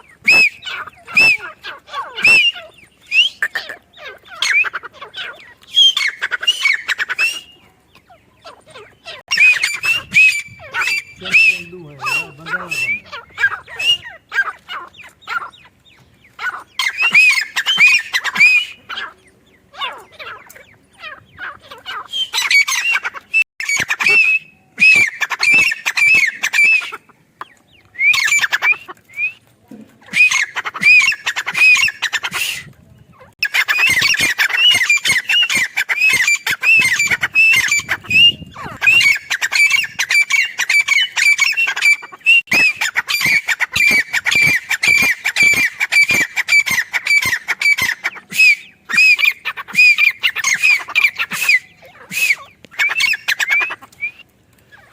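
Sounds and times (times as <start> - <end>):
francolin calling shrill notes: 9.2 - 14.2.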